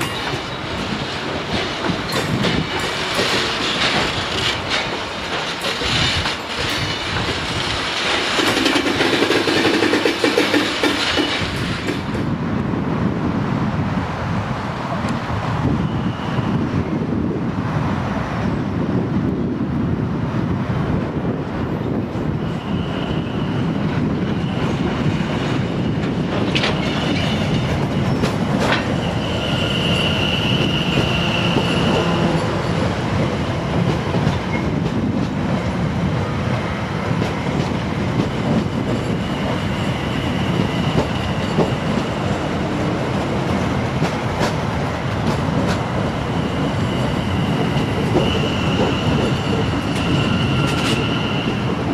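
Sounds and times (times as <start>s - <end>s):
train wheels rumbling on rail: 0.0s - 51.9s
high wheel squeal: 15.8s - 16.6s, 22.4s - 32.8s, 46.3s - 51.9s.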